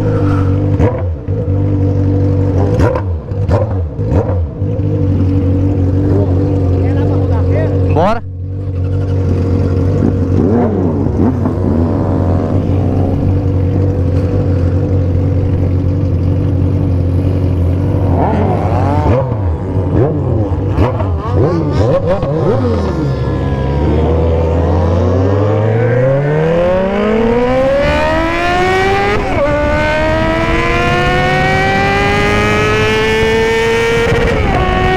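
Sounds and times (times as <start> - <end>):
motorcycle accelerating: 0.0 - 34.9
motorcycles revving: 0.0 - 34.9
motorcycle engine idling steadily: 0.5 - 18.6.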